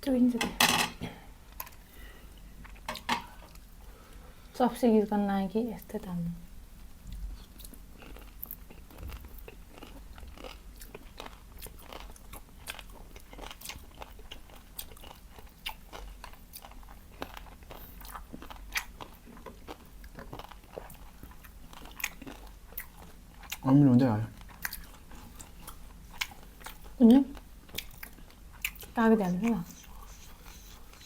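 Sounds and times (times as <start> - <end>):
chewing crispy food: 6.8 - 31.0.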